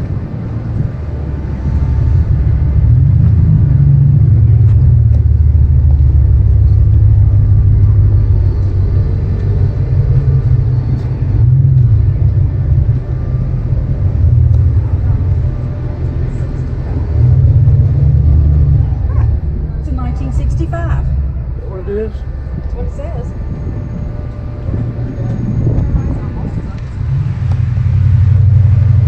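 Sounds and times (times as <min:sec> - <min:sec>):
car engine deep rumble: 0:00.0 - 0:29.0.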